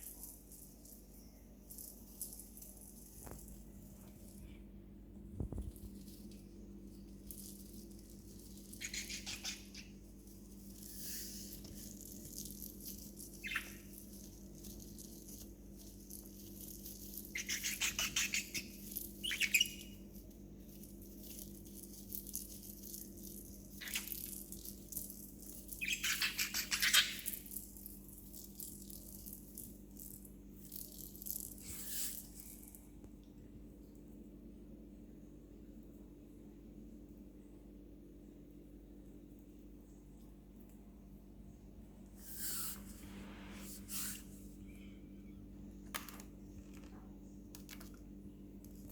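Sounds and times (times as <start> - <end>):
steady low hum: 0.0 - 25.8
budgie chirp: 8.8 - 10.0, 13.3 - 14.0, 17.3 - 20.0.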